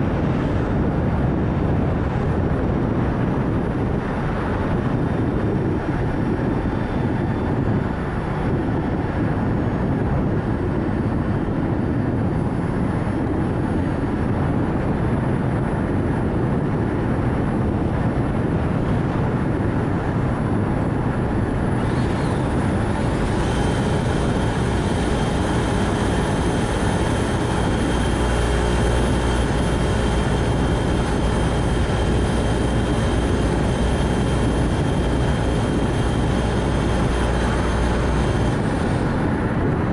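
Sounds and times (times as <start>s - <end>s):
deep rumble: 0.0s - 39.9s
road and tyre noise: 0.0s - 39.9s
wind rush: 0.0s - 39.9s
faint high whine: 3.9s - 11.6s, 19.5s - 39.9s.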